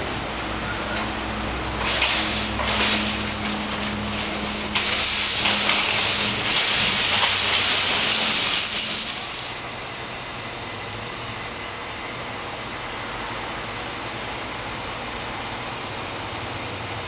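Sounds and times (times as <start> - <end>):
rain and road spray hiss: 4.8 - 9.6.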